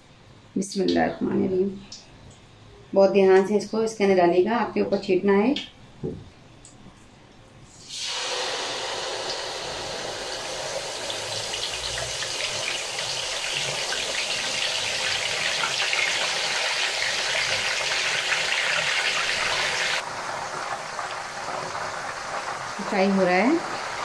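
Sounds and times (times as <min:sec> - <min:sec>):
chicken sizzling in hot oil: 0:07.8 - 0:24.0.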